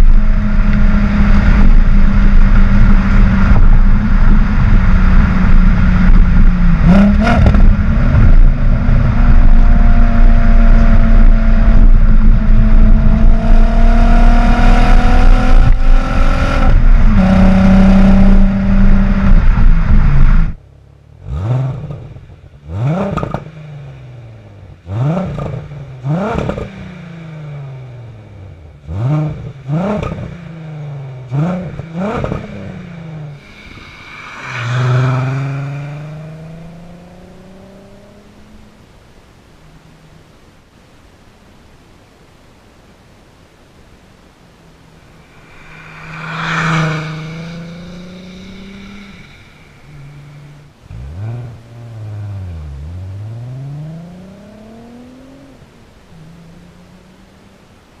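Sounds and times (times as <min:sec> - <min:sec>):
engine revving: 0:00.0 - 0:20.6, 0:22.7 - 0:23.7, 0:31.3 - 0:38.6, 0:45.2 - 0:55.6
car engine running loudly: 0:00.0 - 0:23.4, 0:31.7 - 0:38.2, 0:45.0 - 0:58.0.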